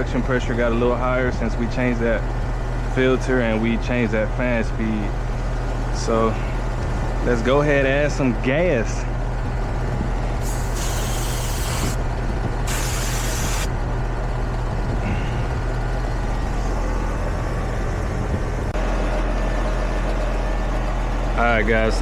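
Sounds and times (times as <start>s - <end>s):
air conditioner unit humming: 0.0s - 22.0s
gas hissing: 10.4s - 12.0s, 12.6s - 13.7s.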